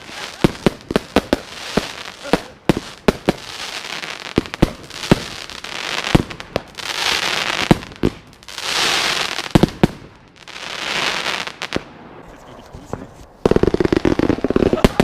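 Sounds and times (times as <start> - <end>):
firework crackling and hissing: 0.0 - 15.0.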